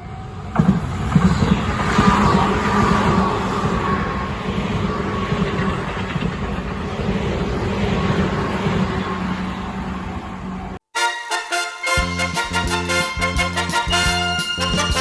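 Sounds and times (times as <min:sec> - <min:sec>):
train wheels rumbling on rails: 0:00.0 - 0:10.8.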